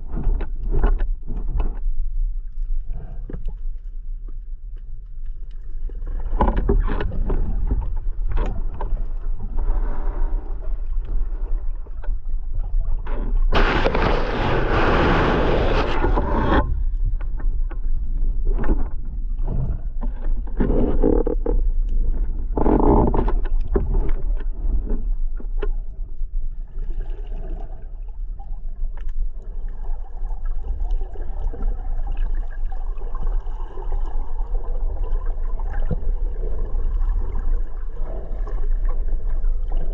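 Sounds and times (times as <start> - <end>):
knocks and scrapes: 0.0 - 2.0, 5.5 - 25.9
muffled water rumble: 0.0 - 39.9.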